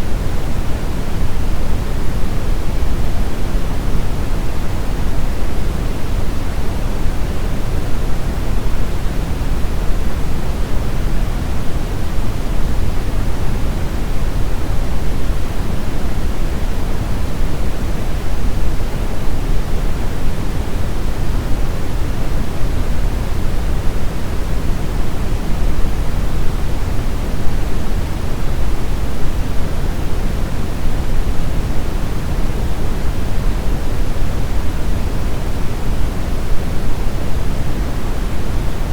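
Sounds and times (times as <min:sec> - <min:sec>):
brown noise rumbling hiss: 0:00.0 - 0:38.9.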